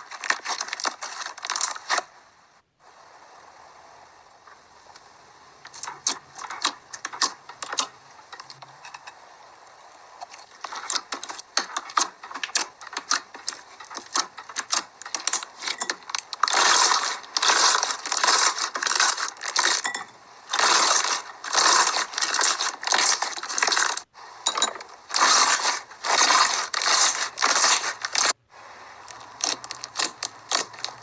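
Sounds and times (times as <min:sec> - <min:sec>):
slime crackling: 0:10.2 - 0:24.1, 0:25.0 - 0:28.4, 0:29.1 - 0:31.0.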